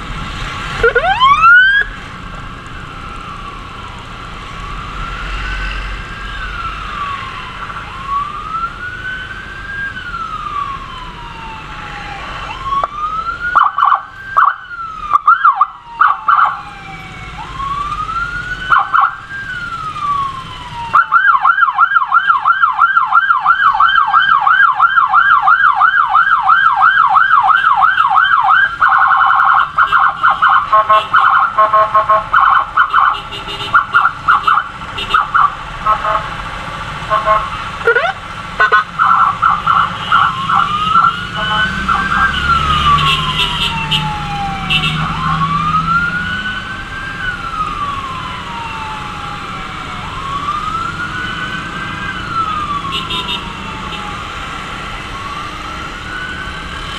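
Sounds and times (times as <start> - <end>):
emergency siren: 0.6 - 56.9
short siren chirps: 0.8 - 1.9, 37.1 - 45.8.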